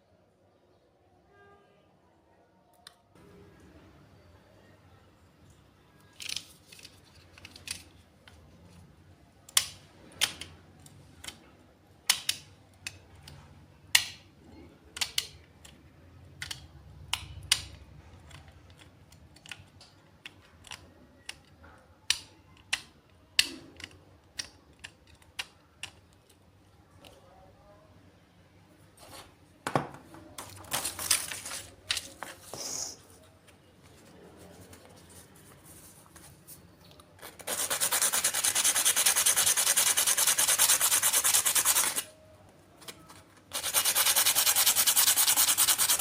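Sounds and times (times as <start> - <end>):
clicks of small hard parts: 9.5 - 14.3, 14.9 - 15.8, 16.4 - 26.4.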